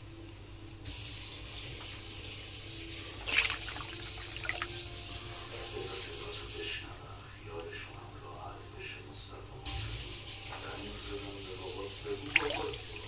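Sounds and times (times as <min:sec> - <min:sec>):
water pouring: 0:01.1 - 0:06.5, 0:09.8 - 0:13.0
water splash: 0:03.2 - 0:04.9, 0:12.1 - 0:13.0.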